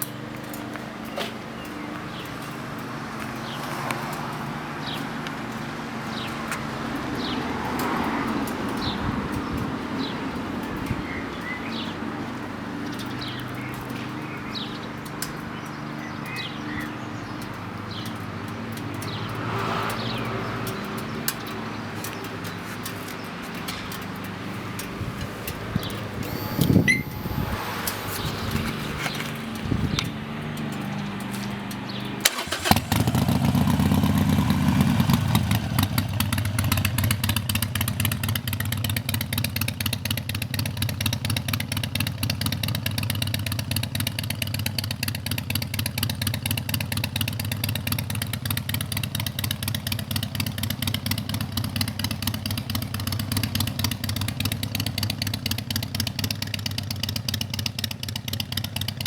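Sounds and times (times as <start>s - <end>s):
motorcycle engine starting and idling: 0.0s - 59.0s
sharp clicks: 15.0s - 33.8s.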